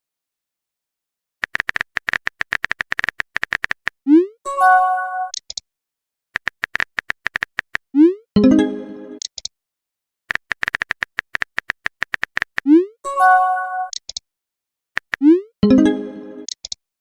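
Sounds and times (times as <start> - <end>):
keyboard typing clicks: 1.4 - 4.0, 5.3 - 5.6, 6.4 - 7.8, 9.1 - 9.5, 10.3 - 12.8, 13.9 - 14.2, 15.0 - 15.4, 16.4 - 16.8.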